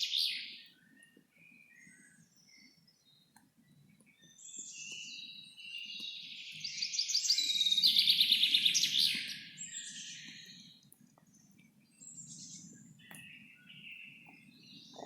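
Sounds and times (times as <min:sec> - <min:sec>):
faint birds chirping: 0:00.0 - 0:15.0
songbird trilling: 0:04.2 - 0:10.8.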